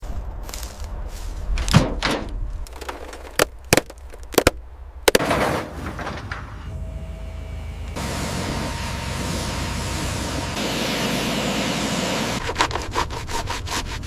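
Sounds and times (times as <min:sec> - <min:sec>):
sharp knocks and slams: 0:01.6 - 0:02.4.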